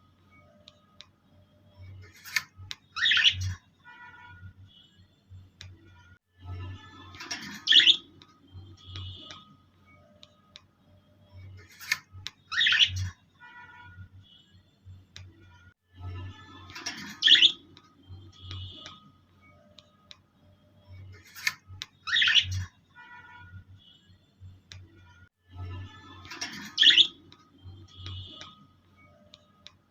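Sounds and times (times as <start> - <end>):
birds chirping and squawking: 1.8 - 3.7, 6.7 - 9.4, 11.4 - 13.2, 16.2 - 19.0, 20.9 - 22.8, 25.6 - 28.6.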